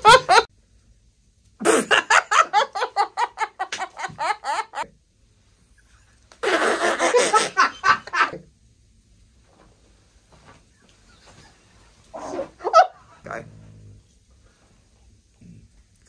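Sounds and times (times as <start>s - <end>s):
person laughing: 0.0s - 0.5s, 1.6s - 4.8s, 5.8s - 8.4s.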